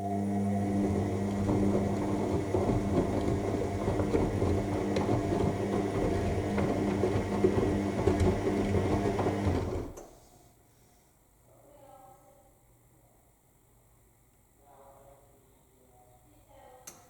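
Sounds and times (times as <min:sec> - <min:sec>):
washing machine motor hum: 0:00.0 - 0:10.0
laundry tumbling in drum: 0:00.8 - 0:09.9.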